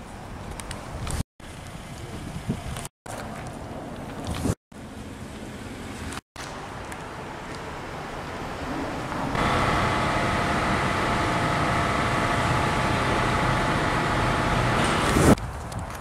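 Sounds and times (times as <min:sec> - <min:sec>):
engine idling: 0:09.4 - 0:15.4.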